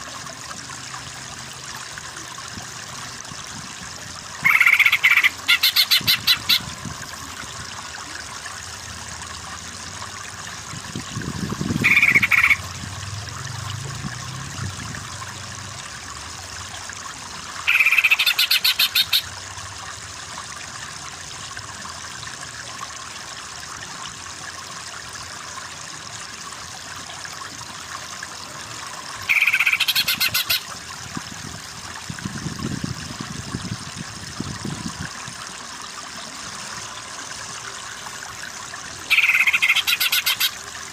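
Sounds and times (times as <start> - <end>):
bird call with rattling trill: 4.4 - 6.6, 11.8 - 12.6, 17.6 - 19.2, 29.3 - 30.6, 39.1 - 40.6.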